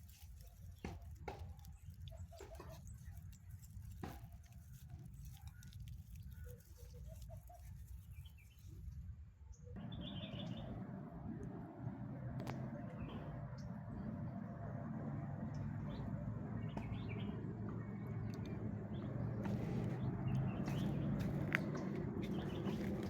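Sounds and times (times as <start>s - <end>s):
faint bird chirps: 9.5s - 10.8s
steady low rumble: 9.8s - 23.0s
footsteps tapping: 16.0s - 23.0s.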